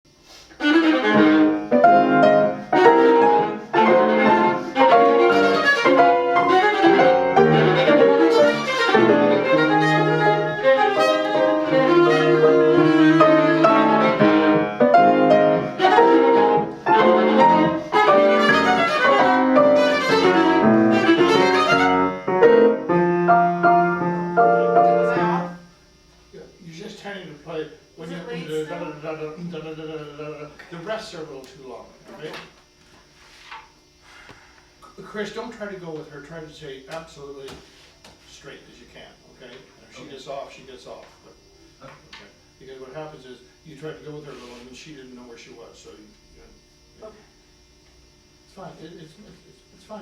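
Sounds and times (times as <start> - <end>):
viola bowing: 0.5 - 25.6
piano accompaniment: 0.6 - 25.6.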